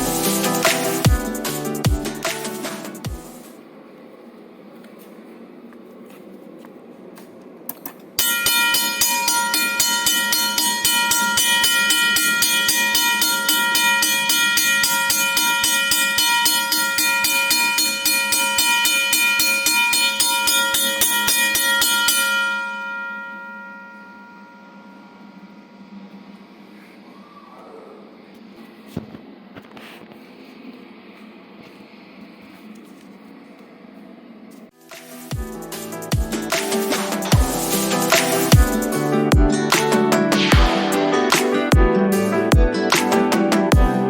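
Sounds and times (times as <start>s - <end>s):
electric bell ringing: 8.2s - 26.1s.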